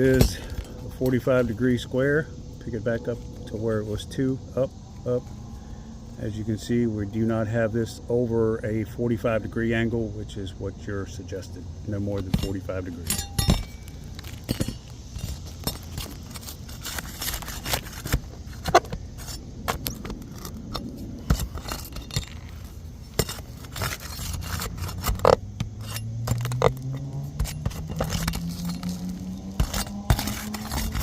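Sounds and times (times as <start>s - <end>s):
metal tools scraping shingles: 0.0s - 1.8s, 12.1s - 31.0s
low hum rising in pitch: 0.6s - 10.2s, 25.4s - 31.0s.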